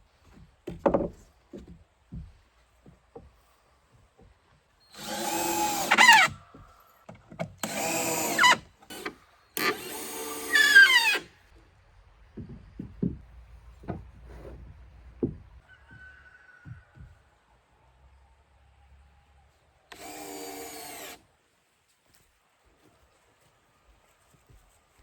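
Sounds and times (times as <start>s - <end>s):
power drill whining: 4.9s - 6.4s, 7.6s - 11.3s, 19.9s - 21.2s.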